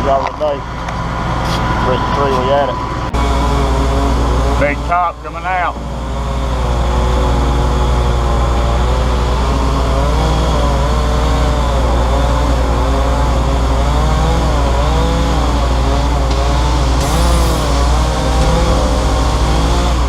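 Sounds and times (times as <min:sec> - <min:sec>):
large engine humming: 0:16.8 - 0:20.0.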